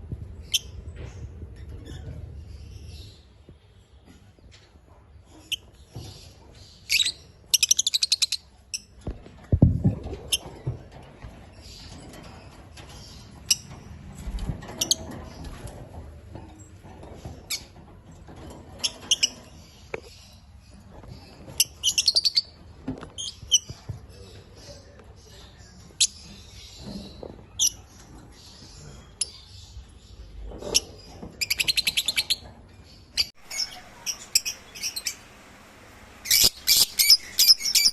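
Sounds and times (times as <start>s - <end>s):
lovebirds chirping: 0.4s - 10.8s, 18.8s - 37.9s
low thud: 9.1s - 10.4s.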